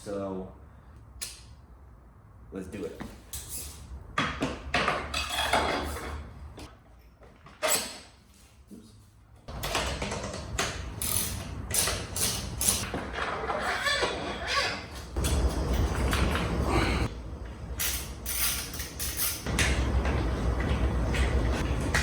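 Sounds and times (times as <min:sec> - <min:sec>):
tools and metal parts clanking: 0:04.7 - 0:08.4, 0:09.5 - 0:17.1, 0:17.7 - 0:22.0.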